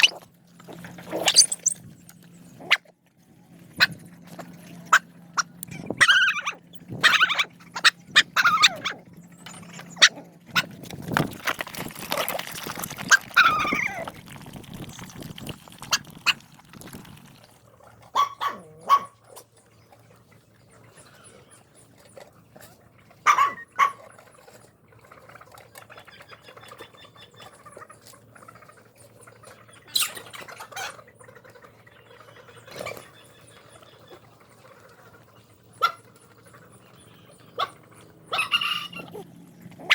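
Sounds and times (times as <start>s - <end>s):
dogs whining: 0.0s - 0.2s, 1.1s - 1.8s, 4.9s - 10.7s, 13.1s - 14.1s, 37.6s - 39.9s
dogs barking short barks: 18.2s - 19.4s, 23.2s - 24.0s.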